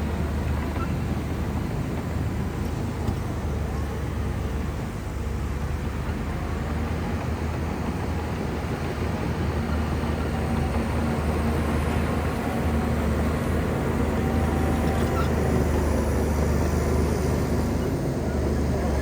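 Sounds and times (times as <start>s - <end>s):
bulldozer diesel engine rumbling: 0.0s - 19.0s.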